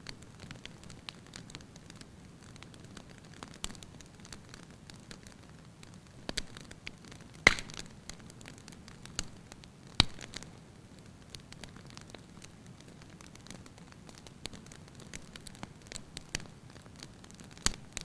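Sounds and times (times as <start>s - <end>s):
wood fire crackling: 0.0s - 18.0s
loud fire pops: 6.3s - 10.5s, 11.3s - 18.0s.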